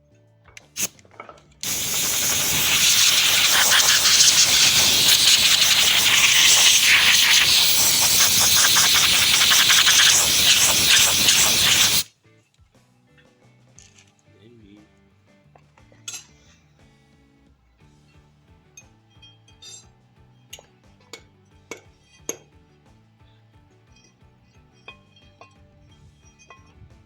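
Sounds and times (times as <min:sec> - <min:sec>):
pressurised spray hissing: 0:01.6 - 0:12.1.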